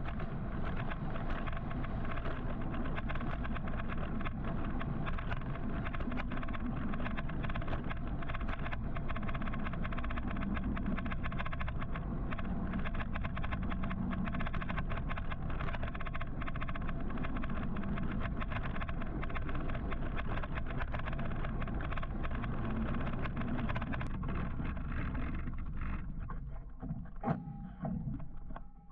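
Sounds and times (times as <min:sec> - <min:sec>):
wind and road noise: 0:00.0 - 0:26.2
faint whine: 0:00.0 - 0:28.9.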